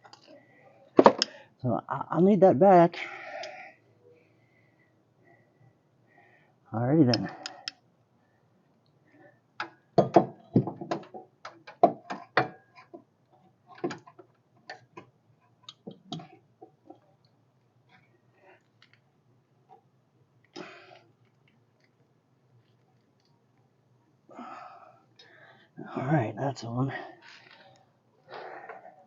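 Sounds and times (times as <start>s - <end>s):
small metal parts clicking: 7.1s - 7.8s.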